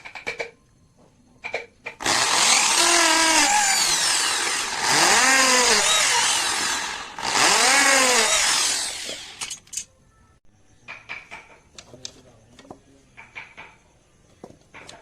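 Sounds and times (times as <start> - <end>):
power tool winding down: 2.0 - 9.5.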